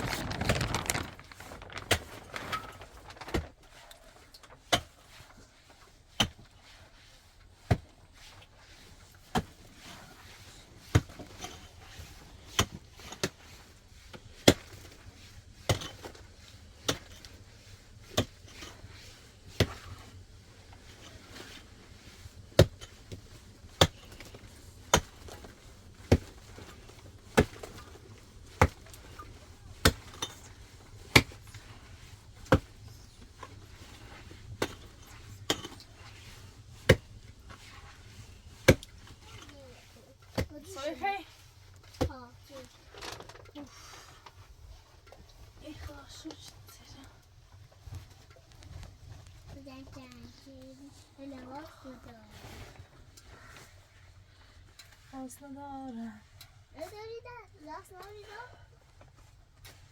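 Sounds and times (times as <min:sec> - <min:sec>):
wood being chopped: 0:27.4 - 0:27.8, 0:31.1 - 0:31.4, 0:36.9 - 0:37.1, 0:38.6 - 0:38.9.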